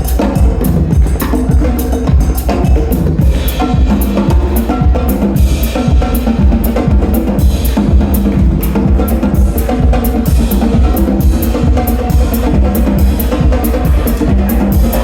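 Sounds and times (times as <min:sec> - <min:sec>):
drum kit playing fast rhythm: 0:00.0 - 0:15.0.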